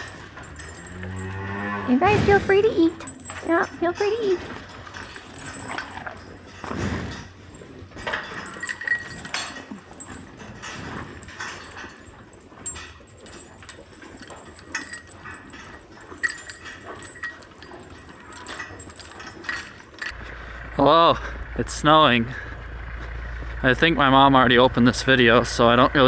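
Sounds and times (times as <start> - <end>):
knocks and clatter: 0.0 - 20.4
cows eating: 0.0 - 20.6.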